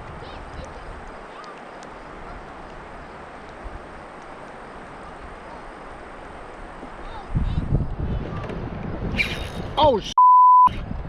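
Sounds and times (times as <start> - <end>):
river water rushing: 0.0 - 7.4.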